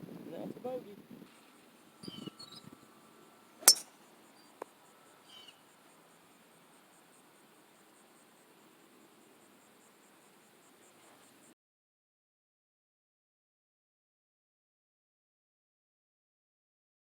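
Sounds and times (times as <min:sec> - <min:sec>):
sharp clink: 0:03.6 - 0:03.9.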